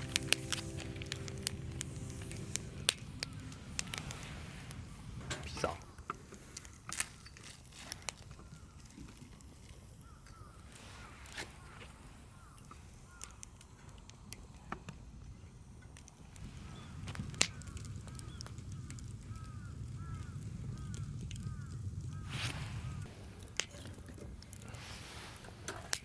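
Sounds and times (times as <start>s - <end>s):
low rumble: 0.0s - 6.0s
distant bird calls: 0.0s - 6.2s, 8.2s - 14.2s, 16.3s - 23.1s.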